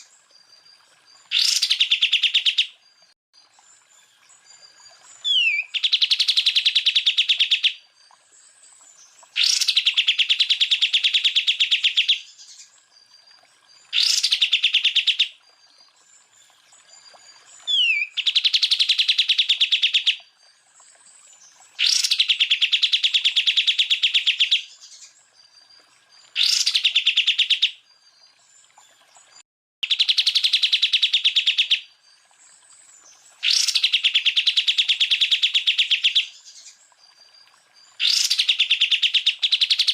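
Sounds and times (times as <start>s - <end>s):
bird trilling song: 1.3s - 2.8s, 5.2s - 7.8s, 9.3s - 12.7s, 13.9s - 15.3s, 17.6s - 20.2s, 21.8s - 25.2s, 26.4s - 27.8s, 33.4s - 36.8s, 38.0s - 39.9s.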